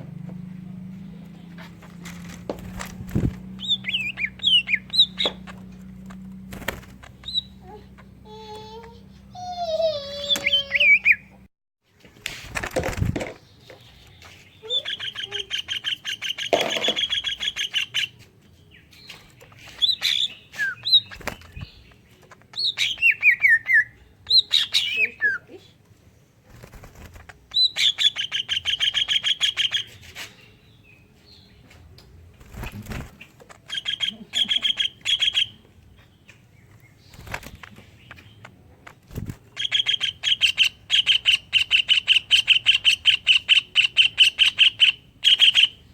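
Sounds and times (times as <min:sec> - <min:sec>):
bird singing with rattling trills: 0:00.1 - 0:06.4, 0:13.2 - 0:25.5, 0:27.2 - 0:31.8, 0:32.6 - 0:45.9.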